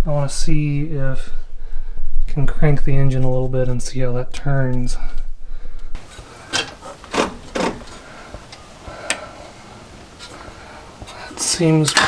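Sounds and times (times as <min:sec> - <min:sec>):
wrench knocking on metal engine: 0:06.0 - 0:12.0.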